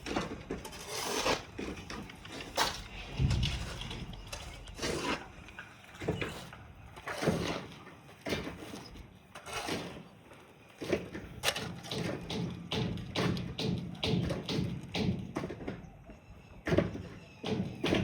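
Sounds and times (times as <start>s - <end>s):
irregular knocks and thuds: 2.8s - 5.5s.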